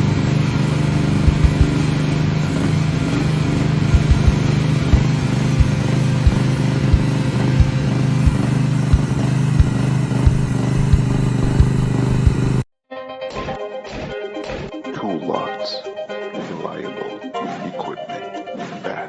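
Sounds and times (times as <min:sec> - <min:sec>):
excavator engine running: 0:00.0 - 0:12.6
regular engine knock: 0:00.6 - 0:12.6
music: 0:01.1 - 0:19.0.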